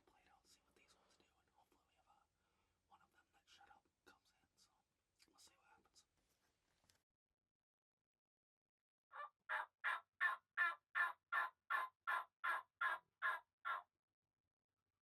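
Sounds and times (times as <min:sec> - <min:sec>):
turkey yelping: 0:09.2 - 0:13.8.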